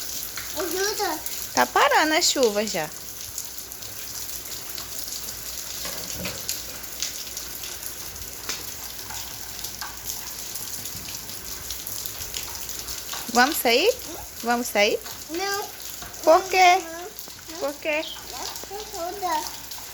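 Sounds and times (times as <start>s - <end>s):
rain hissing: 0.0s - 19.9s
drip taps: 5.7s - 19.9s.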